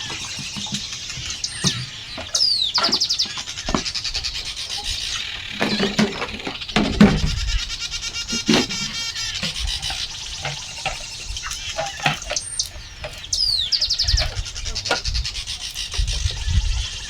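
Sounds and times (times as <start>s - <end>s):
knocks and rustles: 0.0s - 13.4s
birds chirping: 0.0s - 17.0s.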